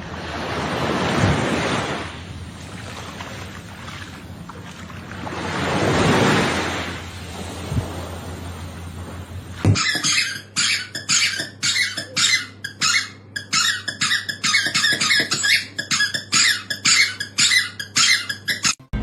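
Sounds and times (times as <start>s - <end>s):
rhythmic sharp squeaking: 9.7s - 19.0s.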